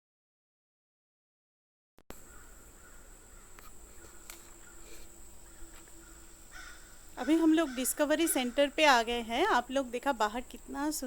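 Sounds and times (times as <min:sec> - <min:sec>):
high-pitched insect drone: 0:02.2 - 0:11.0.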